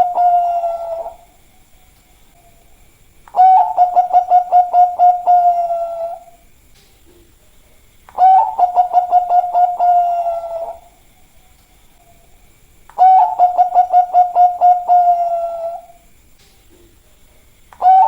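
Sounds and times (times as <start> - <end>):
dove cooing: 0.0 - 1.3, 3.3 - 6.4, 8.1 - 11.0, 13.0 - 16.0, 17.8 - 18.0.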